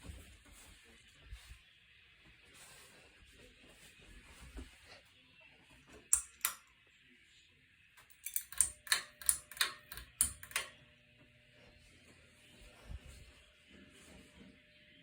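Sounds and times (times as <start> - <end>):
ceiling fan switch clicks: 6.1 - 6.7, 8.0 - 10.8.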